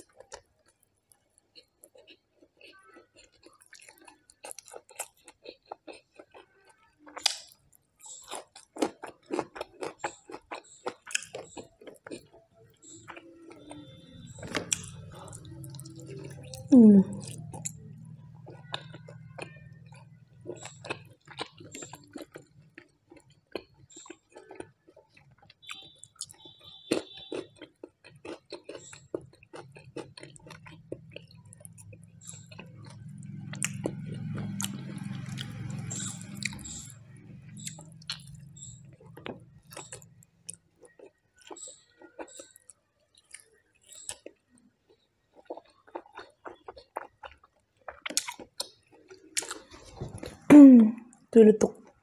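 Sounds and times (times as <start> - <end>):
close chewing with wet mouth clicks: 0.0 - 50.4
low background hum: 29.0 - 40.9.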